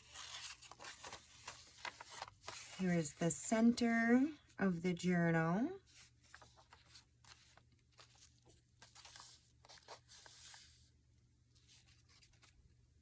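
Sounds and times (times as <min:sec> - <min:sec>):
paper rustling and crinkling: 0:00.0 - 0:03.2, 0:05.8 - 0:10.9, 0:11.6 - 0:12.6.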